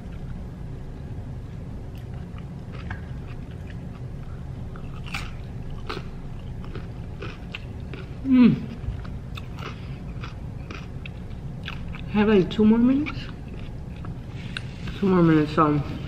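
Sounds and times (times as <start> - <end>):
low background hum: 0.0 - 16.0
chewing salad with wet crunches: 1.5 - 14.8
voiced hum falling in pitch: 8.1 - 9.3.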